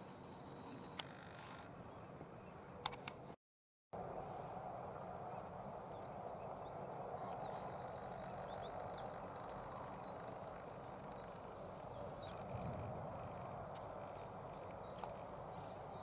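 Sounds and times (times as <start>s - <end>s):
songbird chirps: 4.2s - 16.0s.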